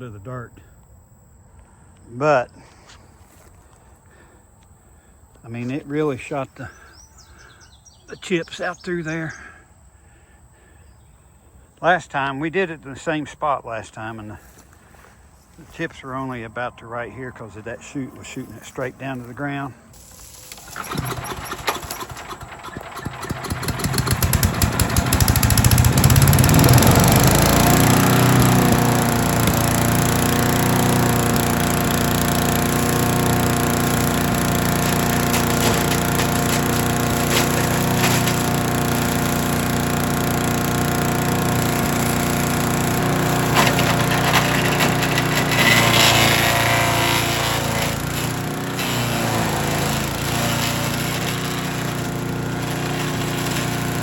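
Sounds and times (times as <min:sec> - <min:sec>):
small gasoline engine running: 0:18.2 - 0:54.0
wood cracking and splintering: 0:20.1 - 0:29.0, 0:32.7 - 0:39.2, 0:41.3 - 0:54.0.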